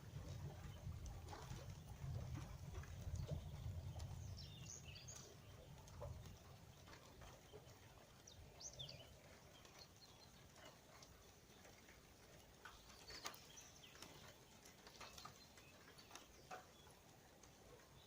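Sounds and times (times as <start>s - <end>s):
low wind rumble on microphone: 0.0s - 9.4s
light ticks: 0.3s - 18.0s.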